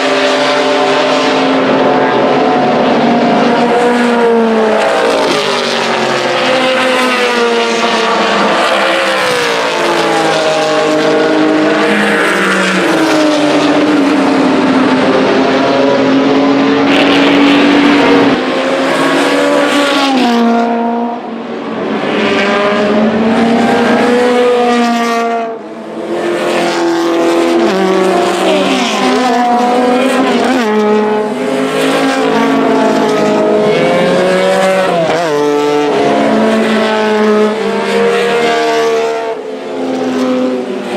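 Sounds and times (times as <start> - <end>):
race car engines revving: 0.0 - 40.9.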